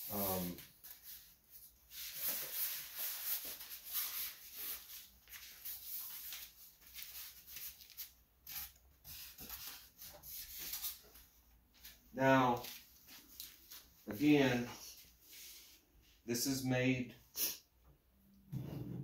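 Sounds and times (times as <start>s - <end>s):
rubbing and rustling of handling: 0.0s - 16.2s.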